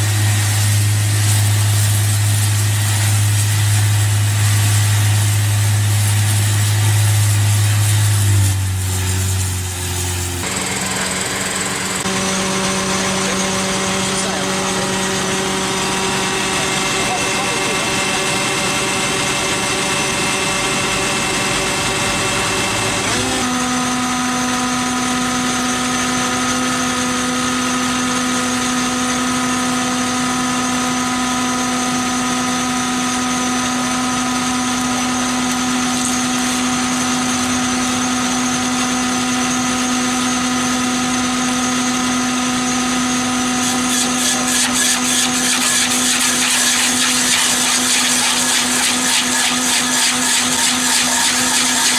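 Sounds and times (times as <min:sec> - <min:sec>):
heavy machine engine running: 0:00.0 - 0:51.9
fast even rattle: 0:43.6 - 0:51.9.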